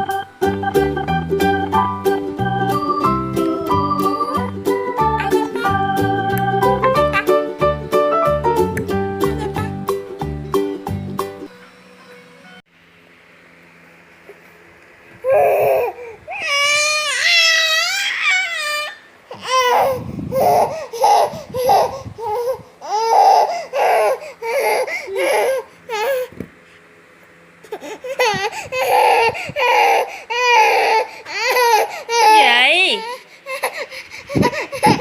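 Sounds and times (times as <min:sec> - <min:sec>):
baby crying: 0:03.6 - 0:04.5, 0:05.1 - 0:05.9, 0:15.2 - 0:26.3, 0:27.7 - 0:35.0.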